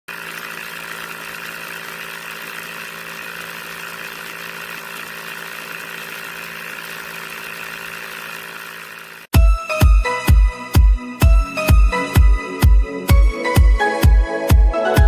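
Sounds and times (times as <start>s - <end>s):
small motor whining: 0.1s - 9.3s.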